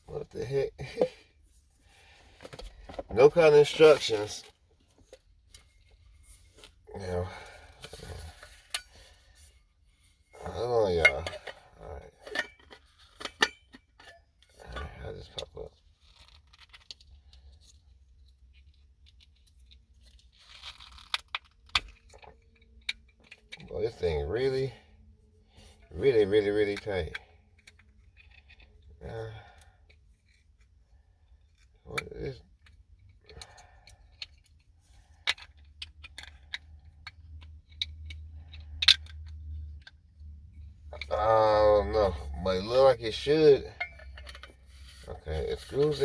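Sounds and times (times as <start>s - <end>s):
quiet fiddling with parts: 0.0s - 46.0s
tumbler parts clicking: 31.4s - 41.1s, 41.8s - 46.0s.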